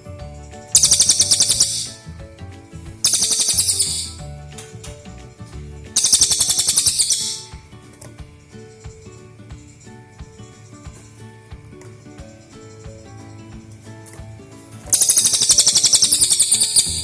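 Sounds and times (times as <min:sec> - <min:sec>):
background music: 0:00.0 - 0:17.0
bird chattering trills: 0:00.6 - 0:02.1, 0:03.0 - 0:04.3, 0:06.0 - 0:07.6, 0:14.9 - 0:17.0.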